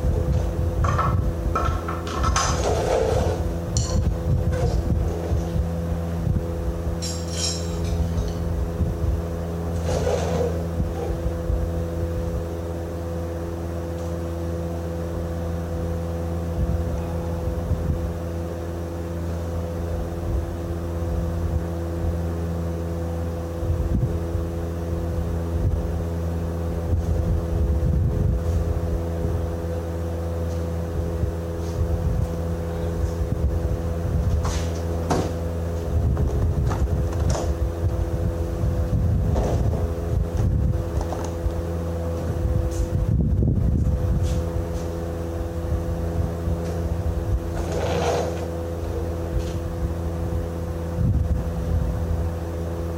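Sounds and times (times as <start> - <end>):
engine running steadily: 0.0 - 52.9
metallic clinks of tools: 7.0 - 8.4.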